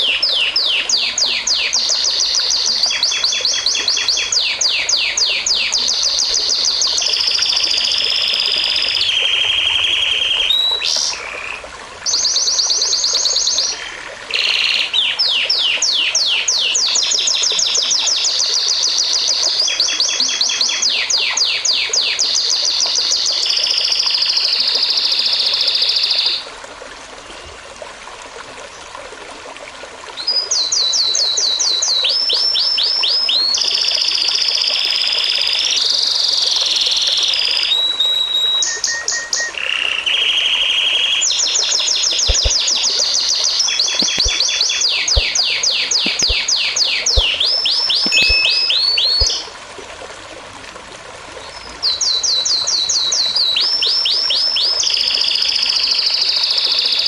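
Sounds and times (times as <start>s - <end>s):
running water hiss: 0.0s - 37.8s, 38.6s - 52.1s
songbirds trilling: 42.1s - 49.5s.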